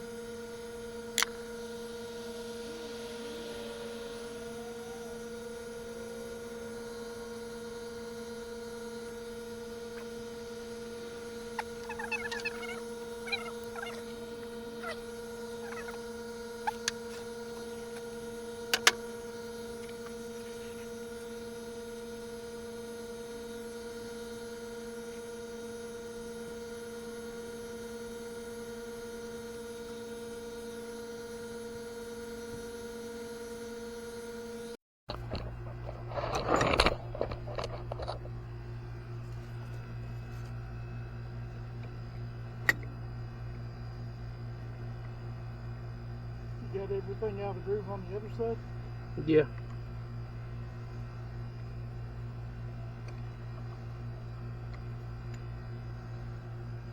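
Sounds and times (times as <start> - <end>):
lower hum: 0.0 - 21.2
electrical hum: 0.0 - 56.9.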